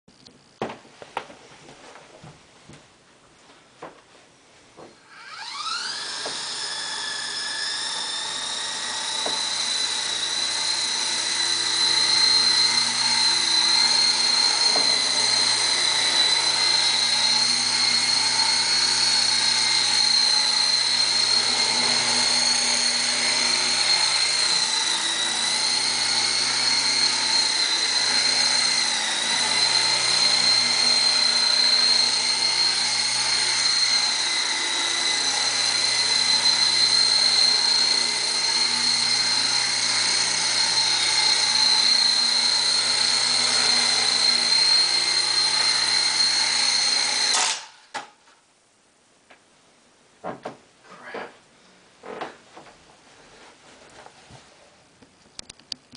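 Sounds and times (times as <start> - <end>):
toy helicopter rotors whining: 5.0 - 48.0.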